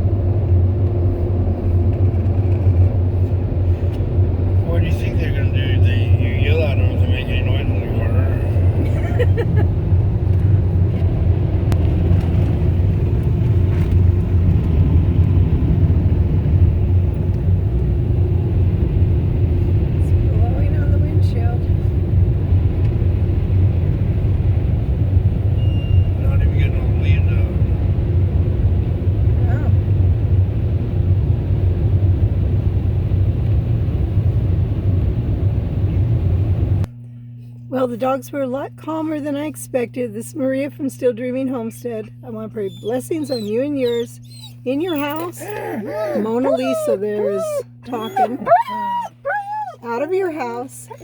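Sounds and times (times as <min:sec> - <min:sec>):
car wash air dryers roaring: 0:00.0 - 0:36.8.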